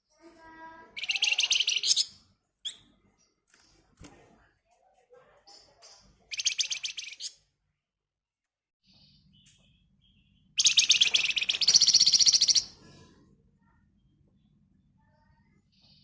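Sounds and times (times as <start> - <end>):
songbird singing rapid trills: 1.0 - 2.1, 6.3 - 7.4, 9.3 - 12.7.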